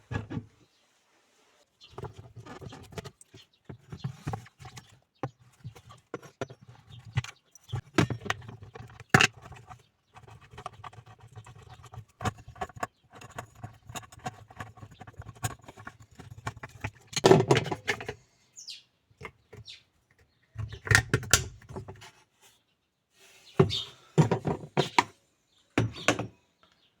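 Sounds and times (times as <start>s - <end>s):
clicks knocks and rattles of hand work: 1.9s - 18.2s, 19.2s - 22.1s, 23.6s - 25.2s, 25.8s - 26.4s.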